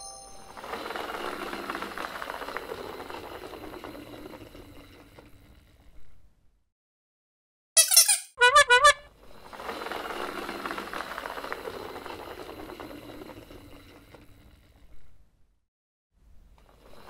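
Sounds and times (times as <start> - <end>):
toy wheels rolling on wooden planks: 0.2 - 6.0, 9.2 - 15.0
cartoon sound effect notes: 7.8 - 9.1.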